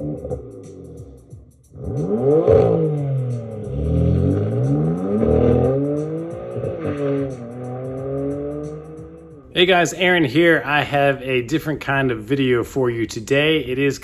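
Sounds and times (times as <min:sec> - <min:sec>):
car engine revving: 0:00.0 - 0:09.5
music with ticking beat: 0:00.0 - 0:11.0.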